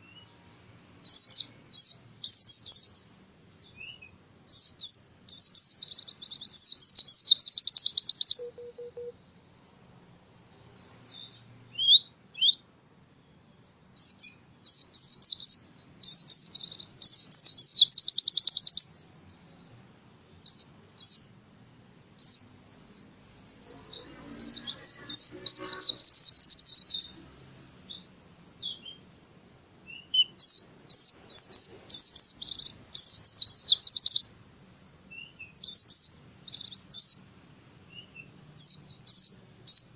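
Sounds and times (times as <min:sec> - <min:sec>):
bird twittering trills: 0:00.0 - 0:39.9.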